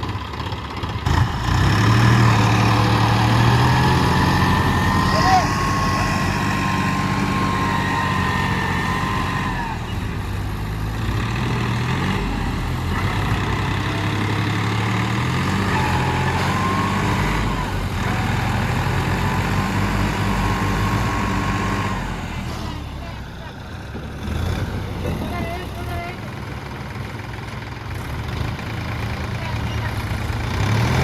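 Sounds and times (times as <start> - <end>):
tractor diesel engines running: 0.0 - 31.0.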